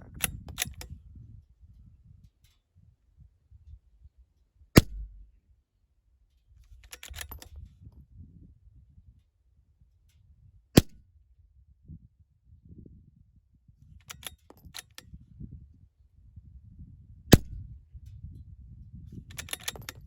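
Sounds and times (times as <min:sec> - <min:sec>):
rifle bolt metallic clicks: 0:00.1 - 0:00.9, 0:04.8 - 0:05.3, 0:06.8 - 0:07.6, 0:14.0 - 0:15.0, 0:19.3 - 0:20.0
rifle shots: 0:04.8 - 0:05.3.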